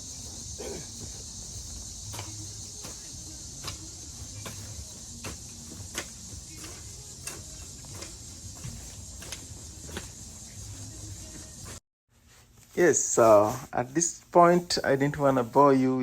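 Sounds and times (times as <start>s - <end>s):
hoe striking soil: 0.0s - 11.8s.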